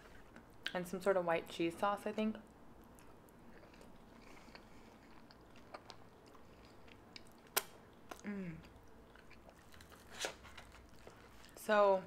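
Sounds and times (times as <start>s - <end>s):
wet chewing sounds: 2.8s - 11.6s.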